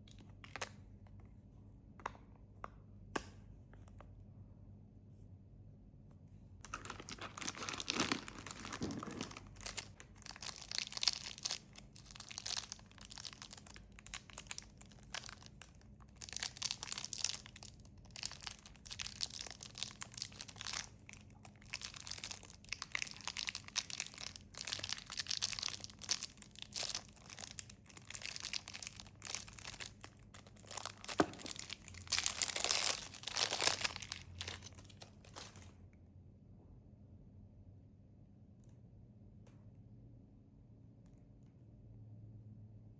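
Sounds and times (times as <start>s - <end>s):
snack wrappers crinkling: 6.6s - 35.8s.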